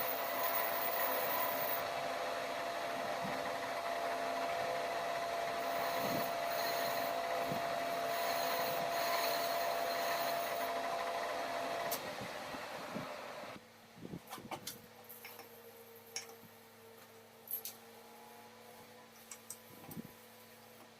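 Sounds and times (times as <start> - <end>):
workshop machine running: 0.0 - 13.6.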